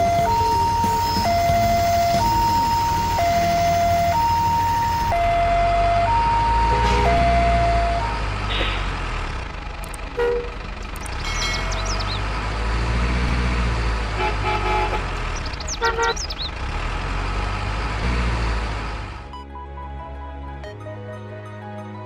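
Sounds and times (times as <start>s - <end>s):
low rumble of traffic: 0.0s - 20.6s
vehicle horn toots: 10.2s - 10.6s, 14.2s - 15.1s, 15.7s - 16.3s.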